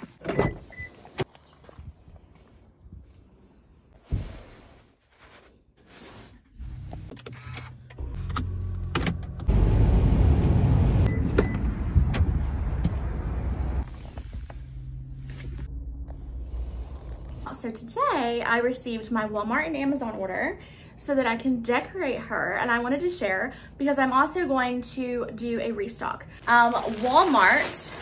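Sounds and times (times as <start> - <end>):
car engine rumble: 6.2 - 17.5.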